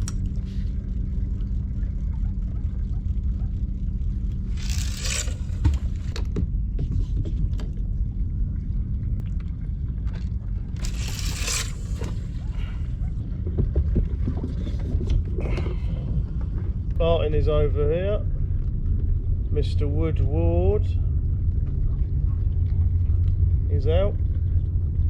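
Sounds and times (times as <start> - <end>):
steady low rumble: 0.0 - 25.0
knocks and scrapes: 4.4 - 7.4, 10.8 - 12.5.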